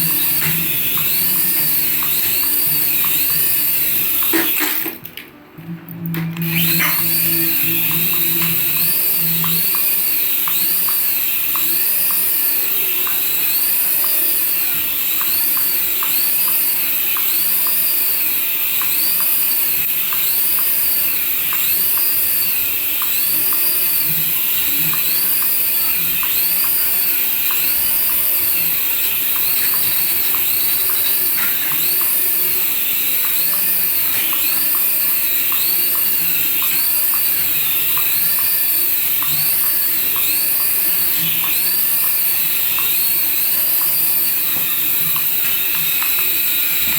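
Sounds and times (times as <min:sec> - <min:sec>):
toy motor whirring: 0:00.0 - 0:05.3, 0:06.0 - 0:46.9
electronic warble: 0:00.0 - 0:14.7.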